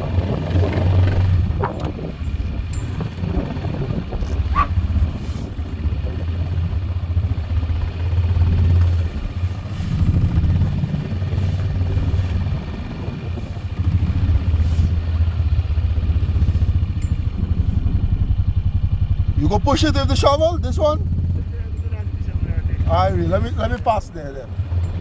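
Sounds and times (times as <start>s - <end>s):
atv engine under load: 0.0s - 25.0s.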